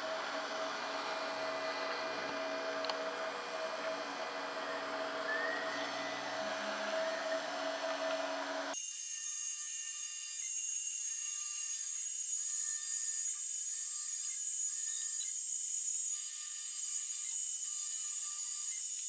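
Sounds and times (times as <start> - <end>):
router spindle motor running: 0.0 - 8.8
stepper motors whining: 0.0 - 8.8.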